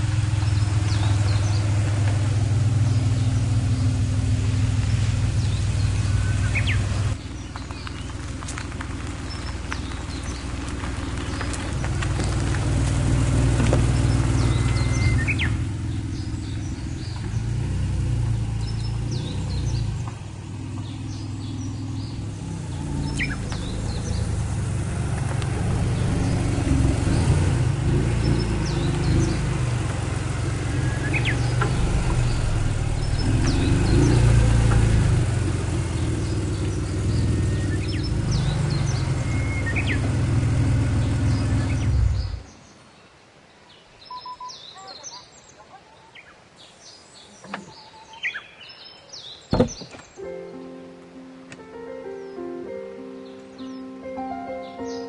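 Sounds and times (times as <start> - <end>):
car engine running: 0.0 - 42.5
birds chirping: 0.0 - 55.0.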